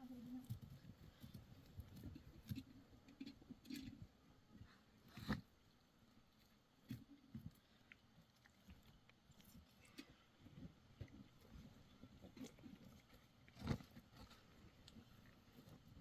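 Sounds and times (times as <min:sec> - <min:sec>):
rustles: 0:06.4 - 0:16.0.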